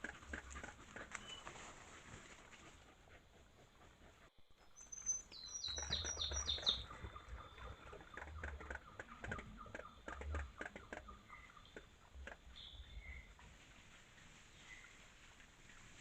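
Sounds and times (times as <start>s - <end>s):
crackling and rustling: 0.0s - 2.9s.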